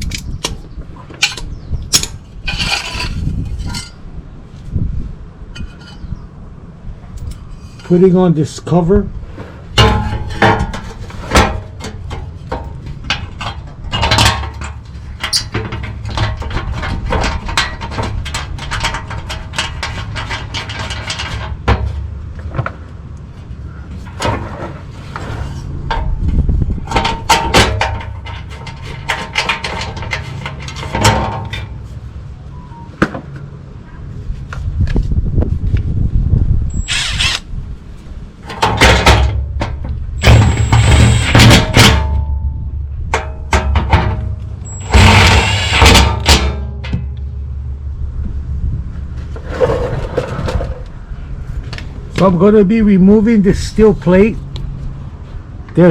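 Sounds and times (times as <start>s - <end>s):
metal skid plate clanking: 9.8s - 22.0s, 38.4s - 47.6s.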